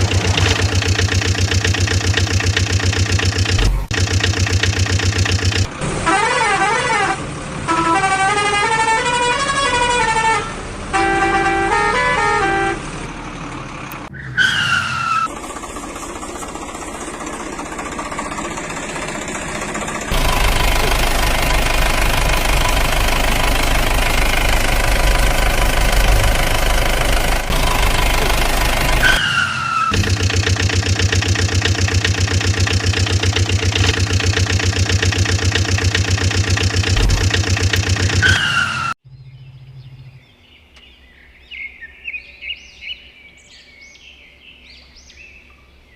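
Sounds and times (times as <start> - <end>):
diesel engine running: 0.0 - 8.4, 11.6 - 14.1, 15.3 - 39.0.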